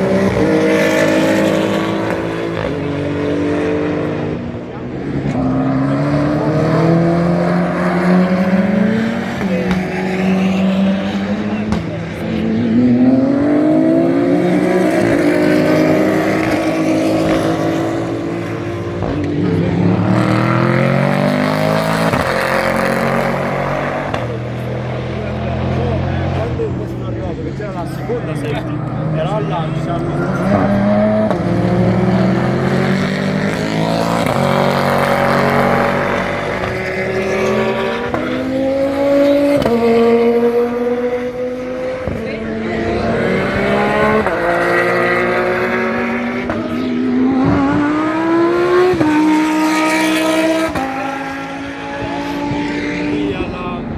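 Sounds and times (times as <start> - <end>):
race car engine at full throttle: 0.0 - 53.9.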